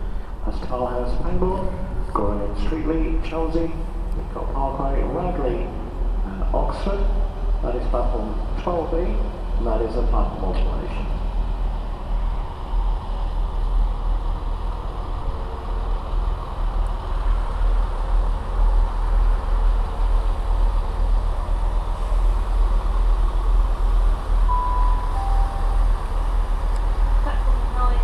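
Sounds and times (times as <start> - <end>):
train low rumble: 0.0 - 28.0
two-note descending station chime: 24.5 - 26.4.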